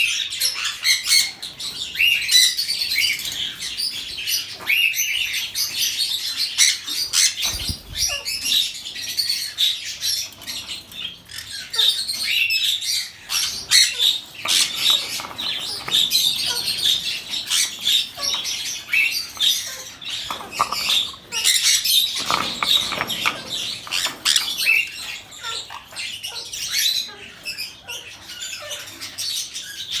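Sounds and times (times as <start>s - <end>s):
parrot squawking and chirping: 6.6s - 8.8s, 11.3s - 29.6s.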